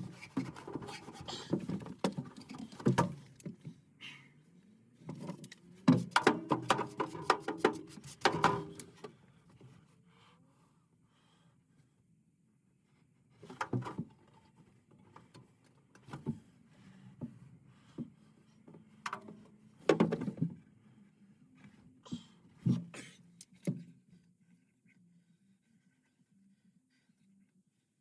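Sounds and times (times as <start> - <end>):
knocks and clatters of hand work: 0.0 - 3.8, 5.1 - 9.0, 19.0 - 20.6.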